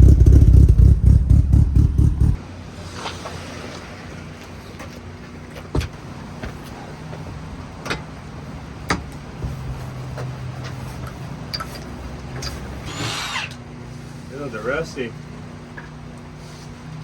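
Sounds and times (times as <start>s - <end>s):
car engine idling: 0.0s - 2.4s.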